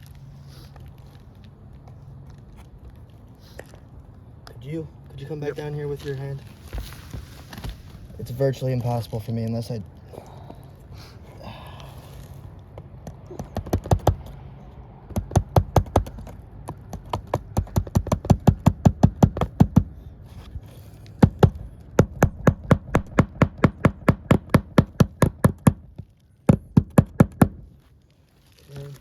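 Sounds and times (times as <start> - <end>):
hammer driving nails into shingles: 13.0 - 14.4, 15.0 - 20.1, 20.7 - 27.8.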